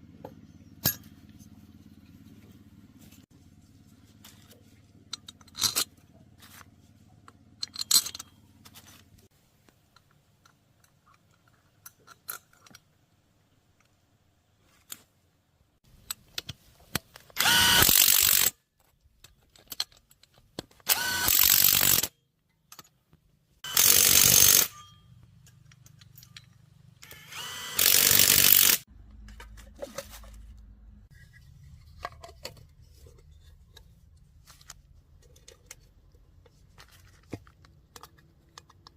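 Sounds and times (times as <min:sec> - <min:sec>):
power tool bursts: 0:17.4 - 0:18.5, 0:20.9 - 0:22.1, 0:23.6 - 0:24.7, 0:27.0 - 0:28.8.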